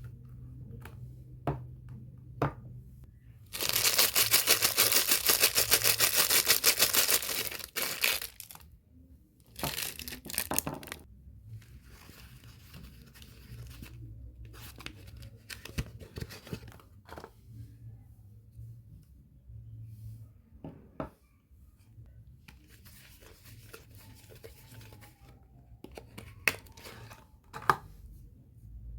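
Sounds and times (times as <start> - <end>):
packaging tearing: 3.5 - 8.6
wrapper rustling and crinkling: 3.5 - 8.7, 9.5 - 11.1.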